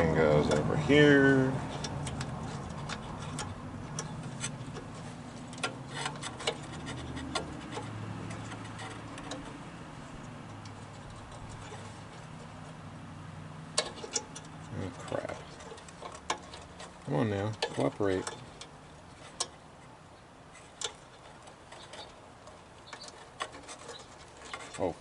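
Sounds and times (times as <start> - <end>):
small metal parts clicking: 1.7 - 9.6, 13.7 - 19.6, 20.5 - 24.9.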